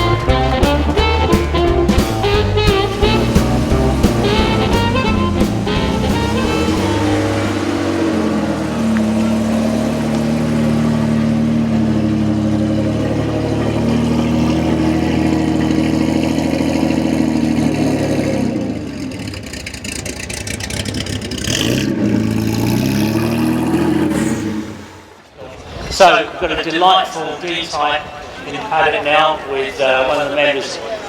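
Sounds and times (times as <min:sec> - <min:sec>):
car engine revving: 0:00.0 - 0:25.3.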